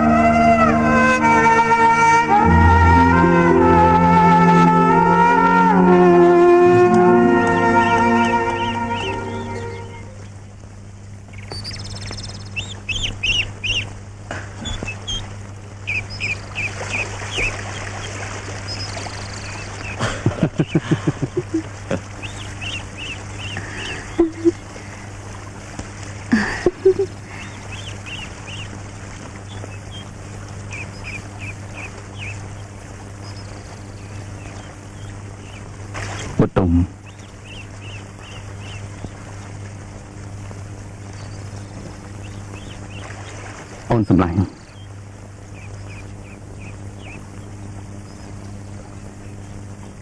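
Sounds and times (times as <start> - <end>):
birds chirping: 0.0 - 50.0
steady low hum: 0.0 - 50.0
lower bird calls: 7.5 - 10.4, 11.2 - 25.1, 26.3 - 39.4, 41.0 - 50.0.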